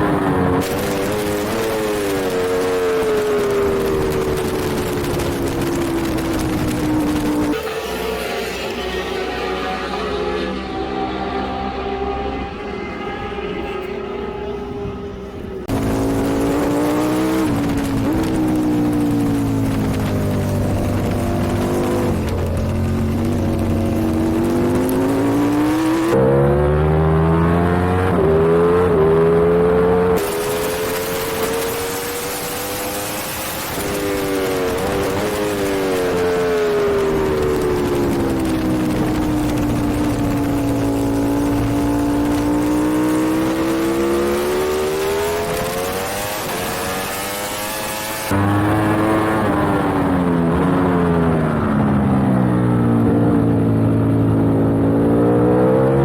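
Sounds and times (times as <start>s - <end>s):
superbike engine revving: 0.0s - 56.0s.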